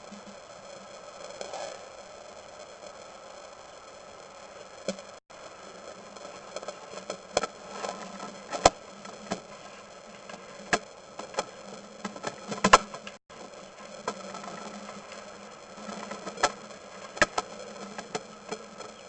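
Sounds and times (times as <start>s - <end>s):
electrical buzz and hiss: 0.0s - 19.0s
sharp clicks and knocks: 15.9s - 19.0s.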